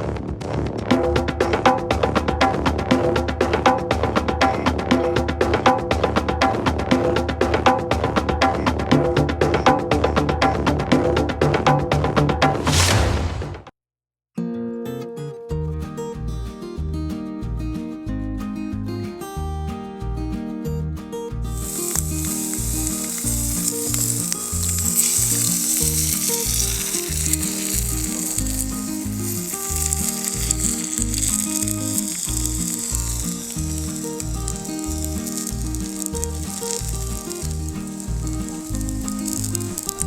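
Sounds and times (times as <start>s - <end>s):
background music with a beat: 0.0s - 12.6s, 16.7s - 40.0s
food sizzling in a skillet: 21.6s - 40.0s.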